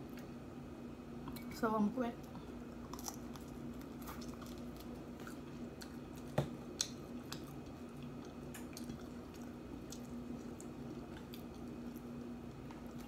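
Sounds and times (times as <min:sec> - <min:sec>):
person chewing with wet clicks: 0:00.0 - 0:00.3, 0:02.2 - 0:13.0.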